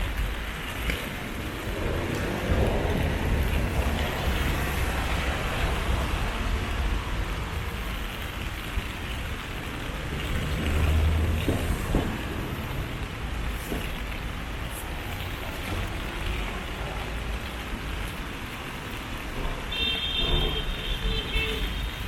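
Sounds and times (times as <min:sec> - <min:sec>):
rain hissing: 0:00.0 - 0:22.0
road traffic rumbling: 0:00.0 - 0:22.0
vehicle passing: 0:09.7 - 0:13.2.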